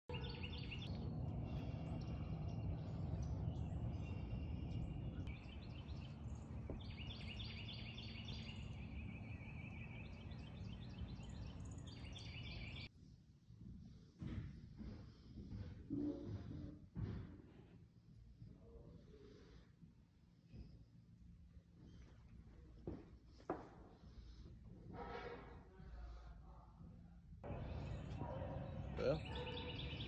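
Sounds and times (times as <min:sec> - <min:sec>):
birds chirping and calling: 0:00.1 - 0:12.9, 0:27.4 - 0:30.0.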